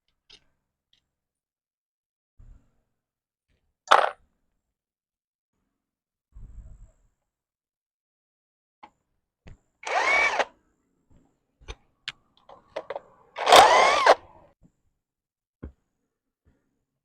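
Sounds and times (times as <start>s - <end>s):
electric drill whining: 9.8s - 10.5s, 13.4s - 14.4s.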